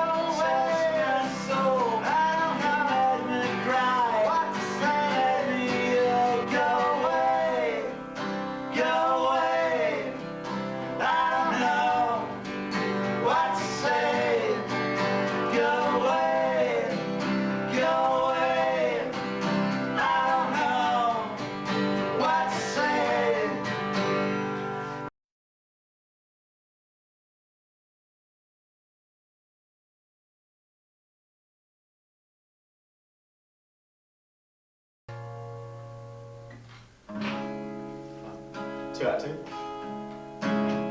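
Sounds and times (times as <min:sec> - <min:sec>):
person singing: 0:00.0 - 0:24.1
strummed acoustic guitar: 0:00.0 - 0:25.1, 0:35.1 - 0:40.9.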